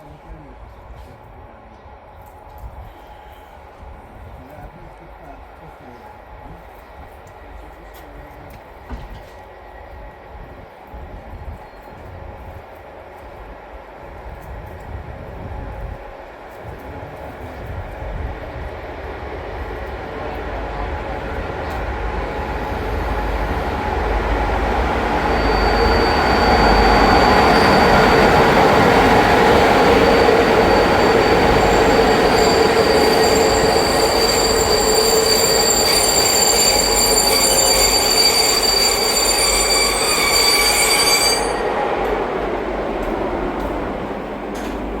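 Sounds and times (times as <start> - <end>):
train wheels rolling on rails: 6.1 - 45.0
high-pitched wheel squeal: 24.8 - 41.7.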